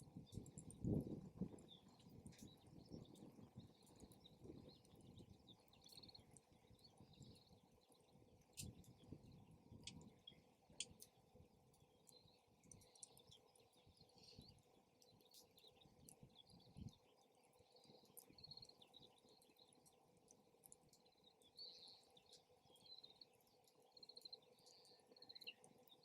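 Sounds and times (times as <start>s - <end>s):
low wind rumble: 0.0s - 7.5s
campfire crackling and popping: 0.0s - 26.0s
small birds chirping: 0.0s - 26.0s.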